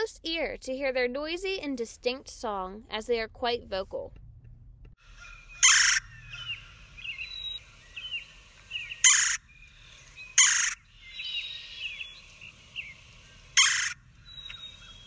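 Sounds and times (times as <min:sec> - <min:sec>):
faint bird chirps: 0:05.0 - 0:15.0
woodpecker churring call: 0:05.0 - 0:15.0.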